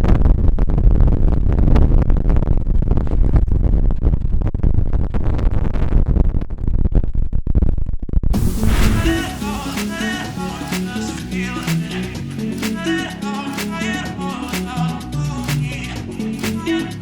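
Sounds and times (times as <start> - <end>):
wind buffeting microphone: 8.3 - 10.2.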